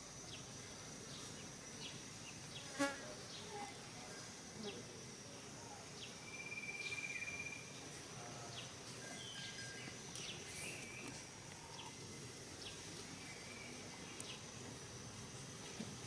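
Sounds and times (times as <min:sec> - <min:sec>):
insect drone: 0:00.0 - 0:16.0
bird trill: 0:06.2 - 0:07.8, 0:09.0 - 0:11.9.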